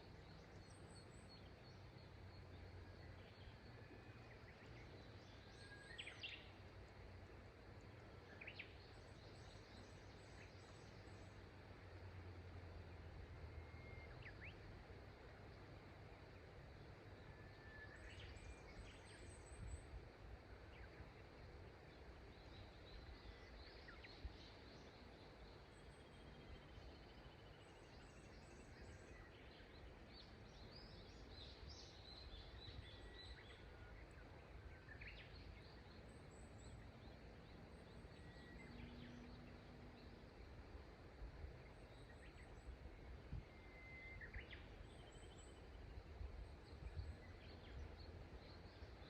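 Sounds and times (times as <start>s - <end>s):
small birds chirping: 17.9s - 49.0s.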